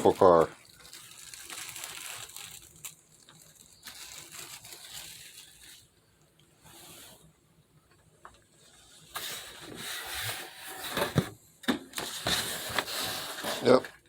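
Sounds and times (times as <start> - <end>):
packaging rustling and crinkling: 0.0 - 6.0, 12.0 - 14.0.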